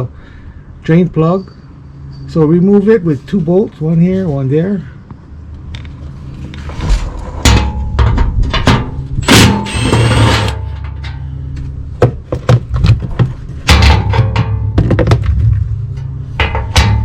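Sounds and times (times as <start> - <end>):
tools knocking and clanking: 12.0 - 15.4, 16.4 - 17.0.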